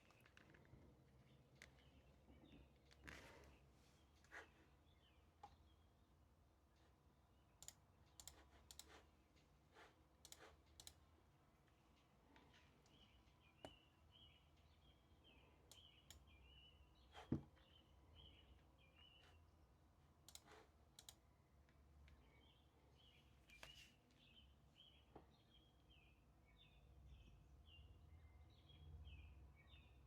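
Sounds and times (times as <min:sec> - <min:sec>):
faint bird chirping: 0:00.0 - 0:09.4, 0:11.6 - 0:30.0
sharp clicks: 0:07.6 - 0:08.9, 0:10.2 - 0:11.0, 0:20.3 - 0:21.2.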